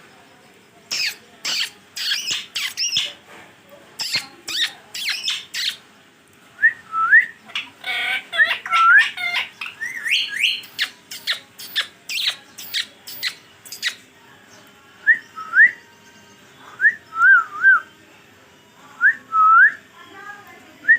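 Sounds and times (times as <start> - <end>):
parakeet whistles and chirps: 0.9 - 3.1, 4.0 - 5.8, 7.2 - 14.0
parakeet squawking: 0.9 - 3.2, 4.0 - 5.8, 7.5 - 14.0.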